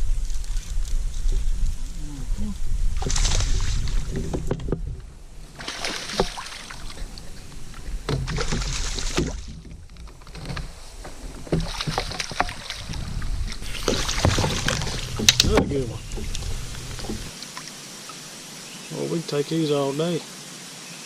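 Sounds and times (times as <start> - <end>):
wind rumble on microphone: 0.0 - 5.6, 6.8 - 17.3
water splashing around kayak: 2.8 - 18.2
small knocks: 13.8 - 17.3.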